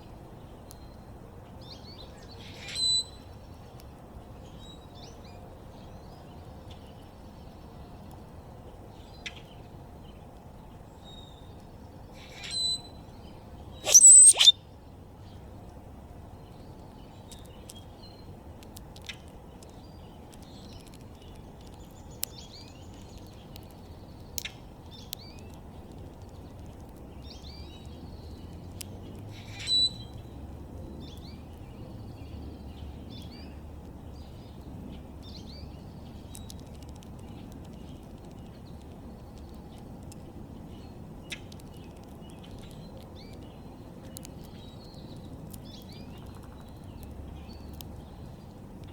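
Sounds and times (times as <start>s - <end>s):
birds chirping: 13.8s - 14.5s.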